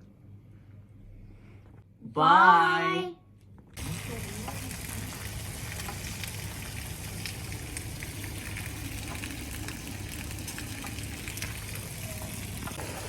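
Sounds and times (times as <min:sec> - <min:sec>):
low even hum: 0:00.0 - 0:13.0
rain pattering on surfaces: 0:03.8 - 0:12.8.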